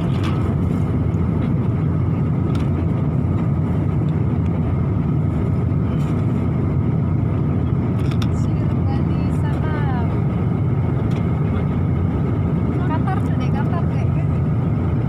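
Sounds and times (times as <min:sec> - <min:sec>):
airliner cabin drone: 0:00.0 - 0:15.0.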